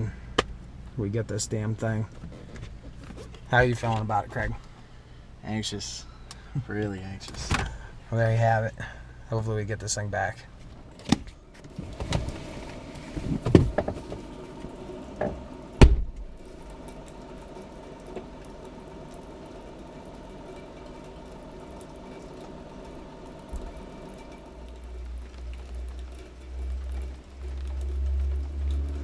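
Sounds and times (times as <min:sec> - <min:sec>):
vehicle engine hum: 0:10.4 - 0:29.0.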